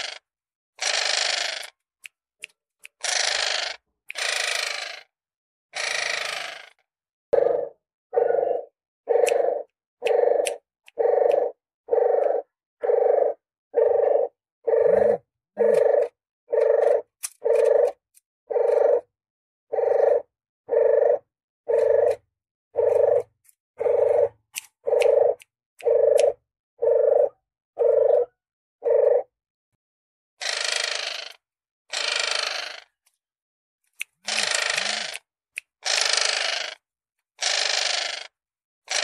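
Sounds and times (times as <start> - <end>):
dove lure call cooing: 7.4 - 19.1, 19.7 - 22.2, 22.8 - 29.3.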